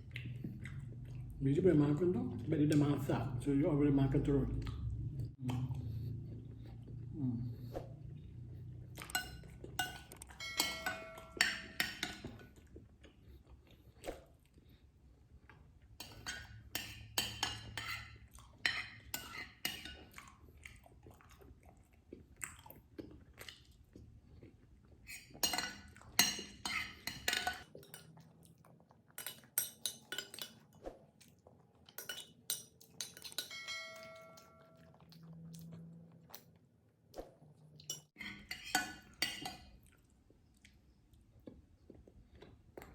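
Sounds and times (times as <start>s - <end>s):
person chewing: 0.0s - 1.4s, 4.6s - 10.4s, 20.0s - 26.2s, 34.4s - 38.5s, 39.1s - 42.9s
spoon clinking against bowl: 9.0s - 12.4s, 32.0s - 34.9s, 37.9s - 39.7s.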